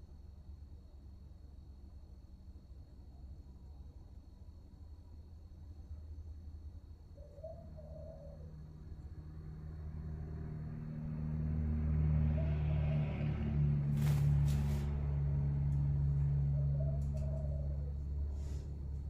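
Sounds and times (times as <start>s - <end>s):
engine hum: 0.0s - 19.0s
dove cooing: 7.2s - 8.8s, 16.3s - 18.3s.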